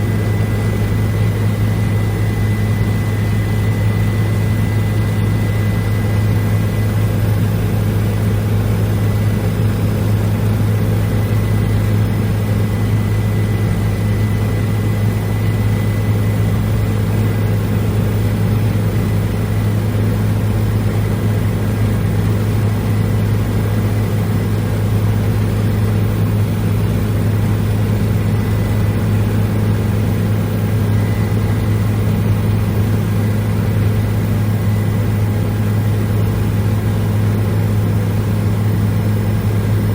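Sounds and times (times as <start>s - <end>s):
faint high whine: 0.0s - 8.3s
helicopter drone from inside cabin: 0.0s - 39.9s.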